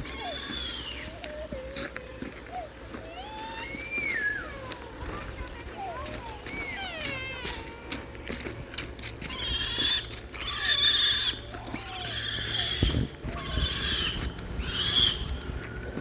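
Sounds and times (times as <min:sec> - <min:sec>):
pig squealing: 0:00.0 - 0:01.1, 0:09.3 - 0:15.4.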